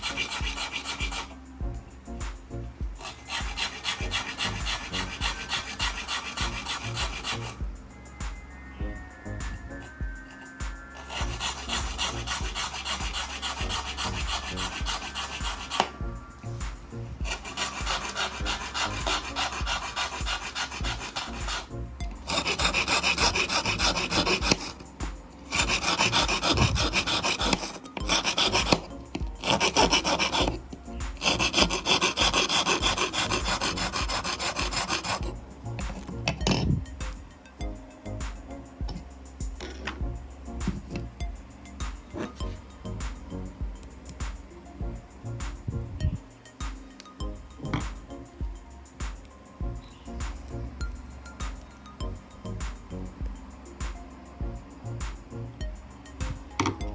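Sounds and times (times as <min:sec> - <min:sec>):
hand file rasping: 0:00.0 - 0:01.8, 0:03.0 - 0:07.7, 0:10.8 - 0:46.3.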